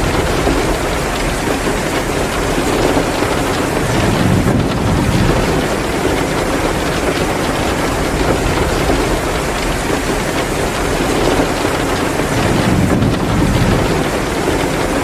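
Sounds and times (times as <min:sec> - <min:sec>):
heavy rain pouring: 0:00.0 - 0:15.0
wood fire crackling: 0:00.0 - 0:15.0
low rumble: 0:03.9 - 0:06.1.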